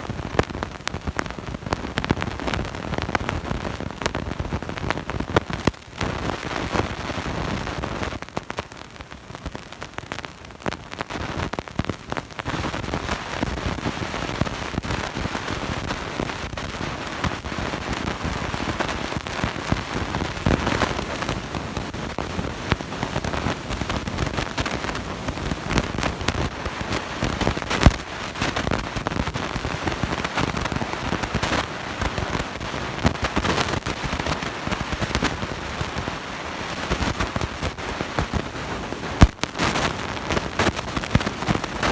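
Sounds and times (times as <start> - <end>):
dense crackling: 21.8 - 41.9.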